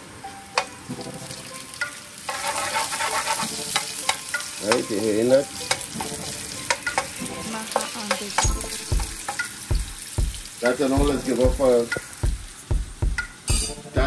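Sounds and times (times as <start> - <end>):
spices sizzling in hot oil: 0.0 - 14.0
spatula scraping pan: 2.2 - 4.8
person's voice: 10.6 - 12.0.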